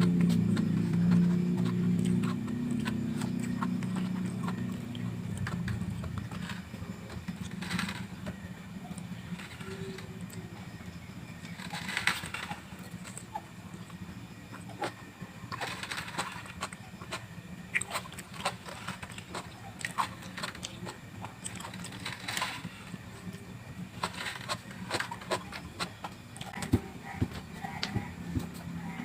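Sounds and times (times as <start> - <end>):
chewing raw vegetables: 0.0 - 10.4, 11.4 - 23.4
low background hum: 0.0 - 29.0.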